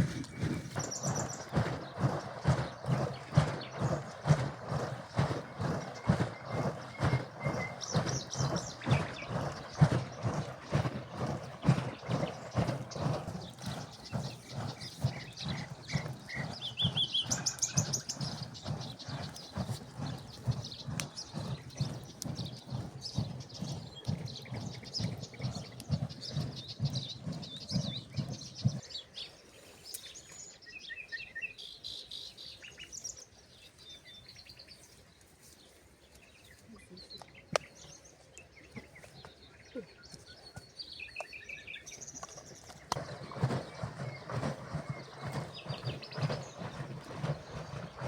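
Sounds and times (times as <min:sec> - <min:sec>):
milk sloshing in churning bag: 0:00.0 - 0:27.1, 0:42.4 - 0:48.0
small birds chirping: 0:00.0 - 0:48.0.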